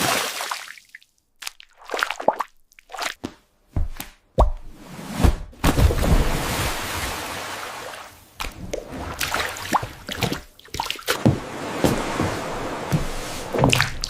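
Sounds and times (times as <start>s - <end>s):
small wet clicks and squishes: 1.0s - 3.2s.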